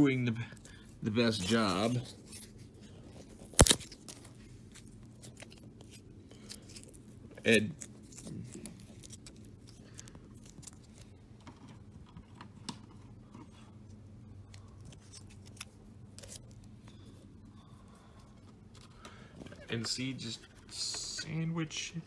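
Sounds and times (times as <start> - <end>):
faint low hum: 0.0 - 22.0
paper rustling and creasing: 1.3 - 11.9.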